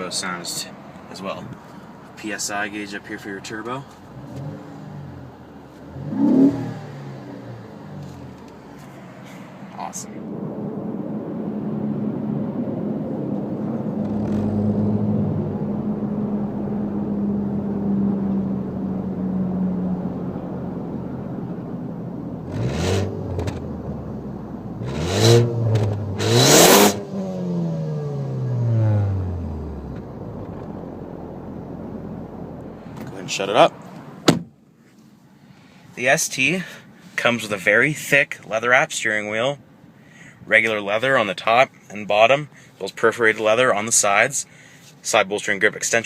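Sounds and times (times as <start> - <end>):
car engine idling and revving: 0.0 - 35.8.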